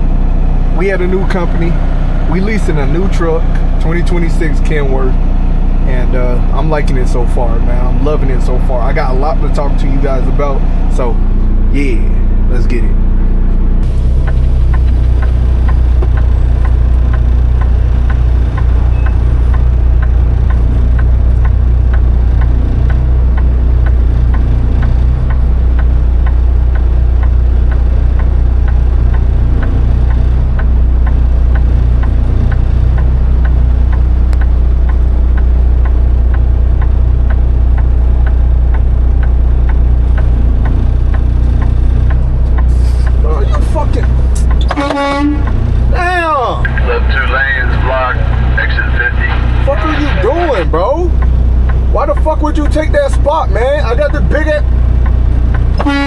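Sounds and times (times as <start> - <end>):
diesel truck engine drone: 0.0 - 56.0
light regular ticking: 13.8 - 45.9, 46.7 - 56.0.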